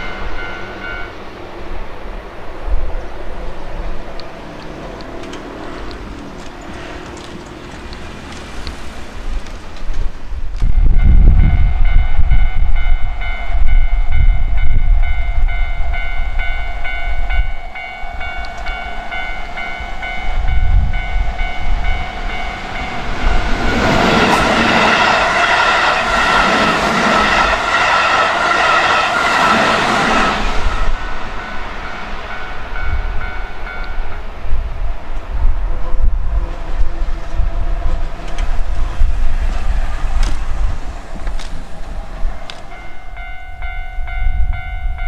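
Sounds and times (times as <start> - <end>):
level-crossing warning bell: 0.0 - 1.4, 10.7 - 34.7, 41.0 - 45.0
electric train passing: 0.0 - 45.0.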